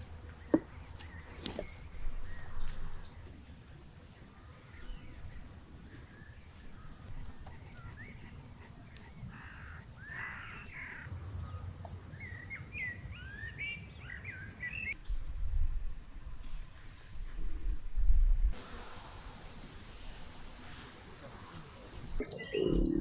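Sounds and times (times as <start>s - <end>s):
harsh bird calls: 0.0s - 15.0s.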